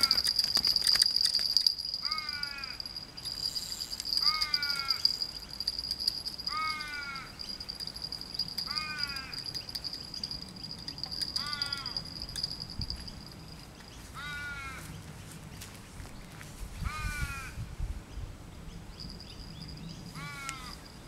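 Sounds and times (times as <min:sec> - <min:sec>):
bird calling: 0:00.0 - 0:14.9
high insect drone: 0:00.0 - 0:14.9, 0:19.0 - 0:21.0.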